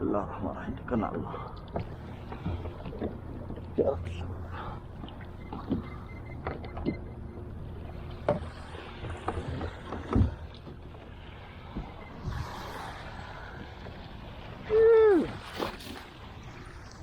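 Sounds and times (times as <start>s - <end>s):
water noise: 0.0s - 17.0s
wind: 0.0s - 17.0s
wash of water: 8.4s - 17.0s.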